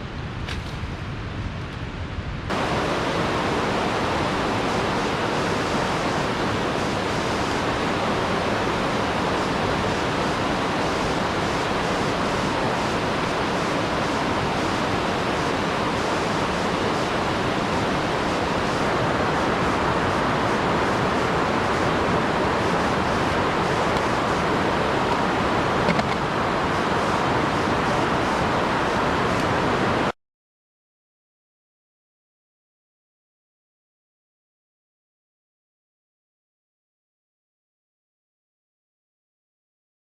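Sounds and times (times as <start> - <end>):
waterfall rushing: 2.5 - 30.1.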